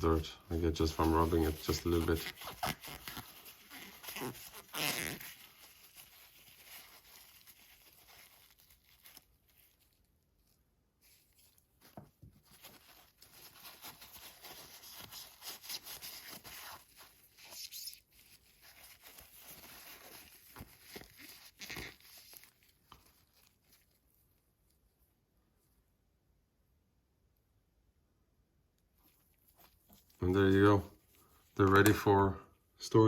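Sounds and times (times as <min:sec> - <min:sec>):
paper towel rubbing and crinkling: 0:00.0 - 0:24.8.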